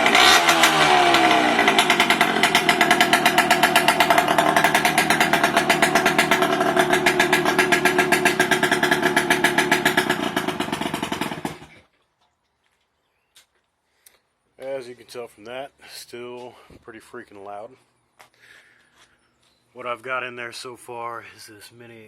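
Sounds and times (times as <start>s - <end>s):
two-stroke engine idling: 0.0s - 11.8s.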